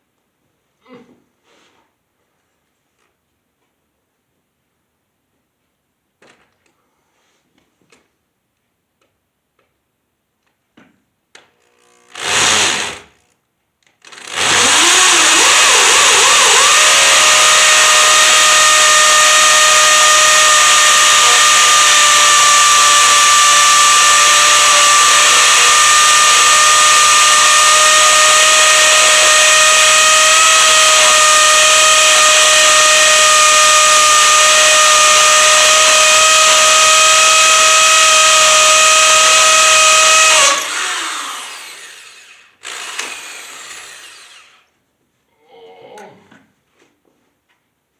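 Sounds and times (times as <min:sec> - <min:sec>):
power tool motor whining: 0:11.6 - 0:13.2, 0:14.0 - 0:44.6.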